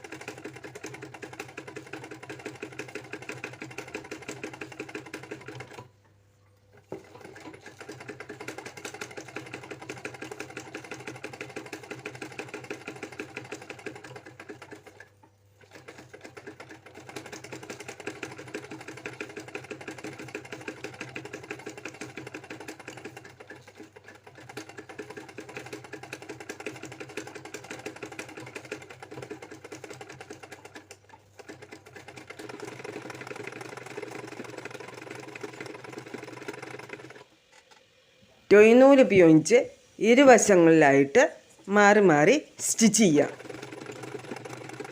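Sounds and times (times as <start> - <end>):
sewing machine stitching: 0.0 - 6.0, 6.7 - 37.8, 41.5 - 44.9.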